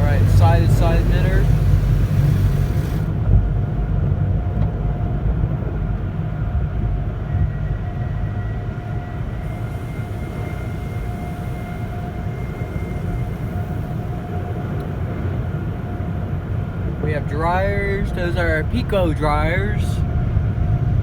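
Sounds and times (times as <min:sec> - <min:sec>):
thin high whine: 0:00.0 - 0:03.1, 0:09.4 - 0:15.2
faint steady whine: 0:00.0 - 0:03.4, 0:07.3 - 0:21.0
car wash machinery rumble: 0:00.0 - 0:21.0.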